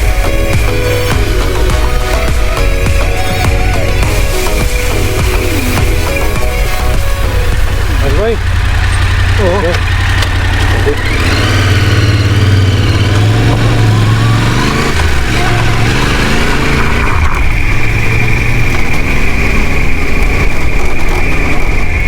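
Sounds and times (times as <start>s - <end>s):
steady high tone: 0.0s - 9.8s
motorcycle engine revving: 0.0s - 22.0s.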